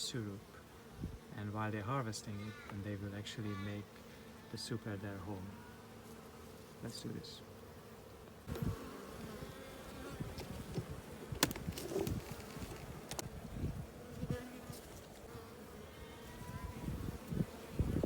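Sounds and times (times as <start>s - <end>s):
honeybees buzzing: 0.0s - 18.0s
hive boxes clicking and knocking: 10.2s - 13.3s.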